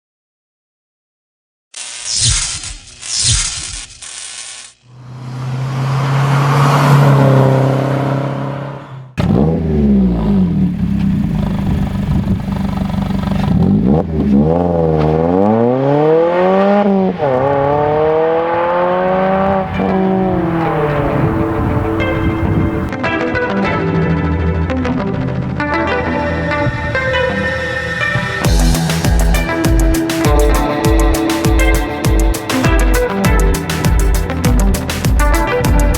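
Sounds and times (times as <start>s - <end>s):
car accelerating with gear changes: 4.9s - 22.9s
car exhaust note: 7.6s - 22.9s.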